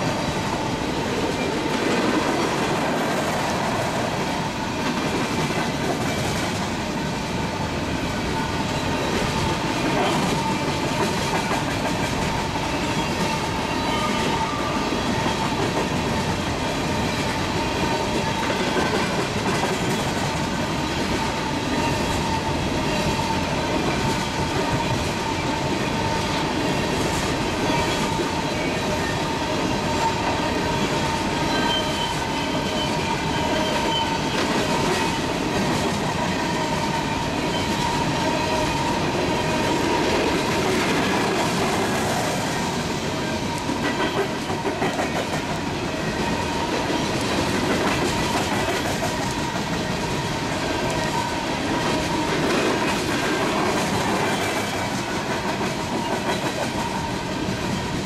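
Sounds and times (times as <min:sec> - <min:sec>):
train wheels rumbling and clicking: 0:00.0 - 0:58.0
ringing tone from wheels: 0:29.9 - 0:35.3.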